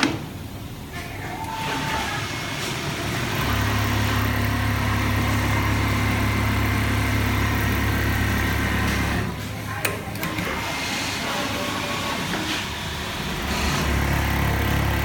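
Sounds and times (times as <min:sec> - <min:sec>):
sewing machine motor hum: 0:02.2 - 0:09.3, 0:10.2 - 0:15.0.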